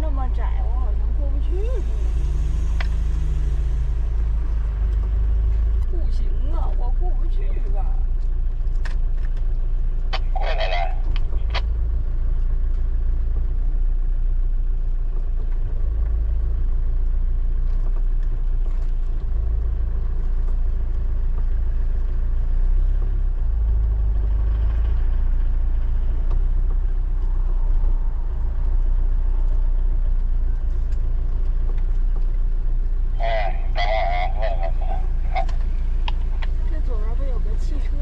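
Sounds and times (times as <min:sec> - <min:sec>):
car engine and road rumble: 0:00.0 - 0:38.0.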